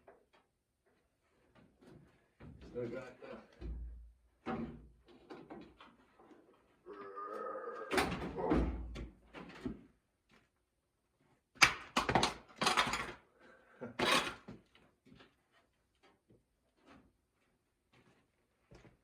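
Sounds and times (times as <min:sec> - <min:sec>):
knocks clicks and rustles: 0:11.6 - 0:13.3.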